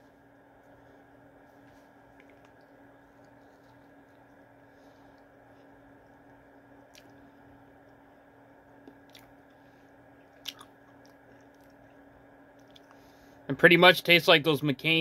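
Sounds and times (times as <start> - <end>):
low steady hum: 0.0 - 15.0
person chewing: 1.5 - 8.0, 8.8 - 9.6, 10.2 - 13.0.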